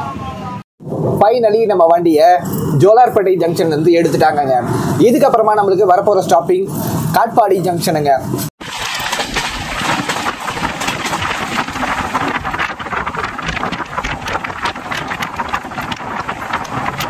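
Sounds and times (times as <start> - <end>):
small rattles and clicks: 8.6 - 17.0.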